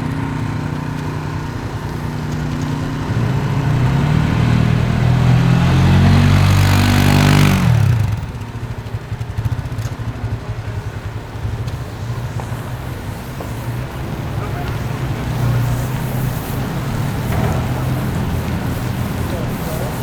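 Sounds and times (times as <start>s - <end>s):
large engine running: 0.0s - 20.0s
rushing hiss: 11.8s - 20.0s.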